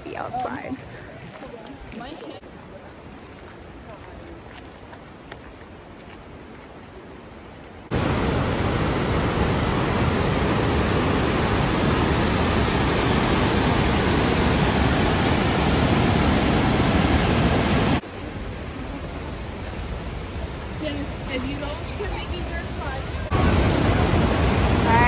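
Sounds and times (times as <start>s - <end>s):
whitewater rushing: 7.9s - 25.0s.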